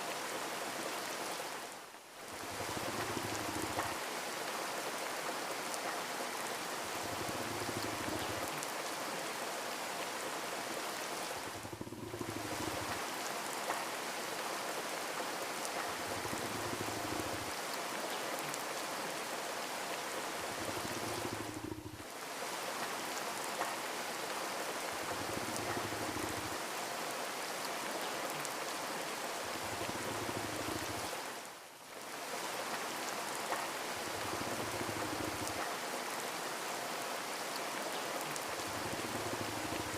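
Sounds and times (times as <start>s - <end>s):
steady rain: 0.0s - 39.9s
soft low rumble: 11.4s - 13.0s, 20.4s - 22.0s.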